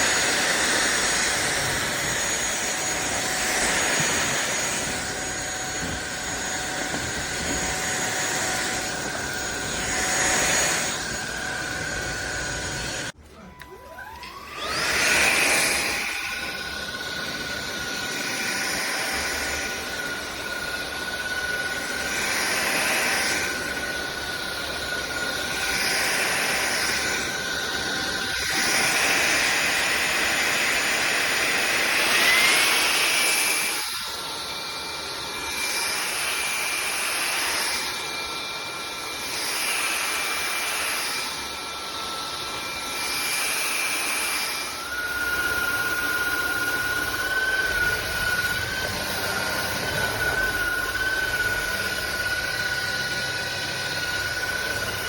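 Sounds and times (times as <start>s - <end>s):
stick vacuum cleaner running: 0.0s - 55.0s.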